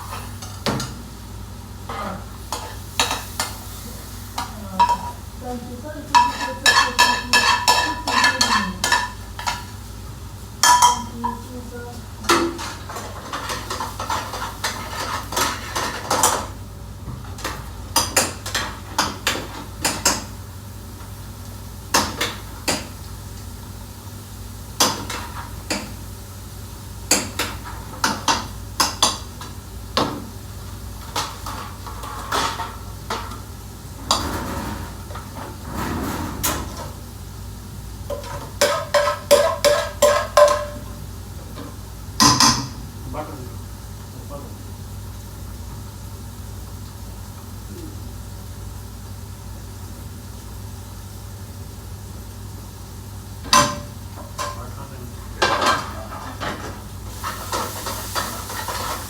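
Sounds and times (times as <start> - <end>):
metal pots and pans clattering: 4.8 - 5.2, 6.1 - 9.8, 10.6 - 11.5, 12.2 - 16.6, 31.0 - 33.4, 34.0 - 37.0, 38.0 - 41.0, 41.6 - 42.8, 53.4 - 54.7, 55.4 - 59.0.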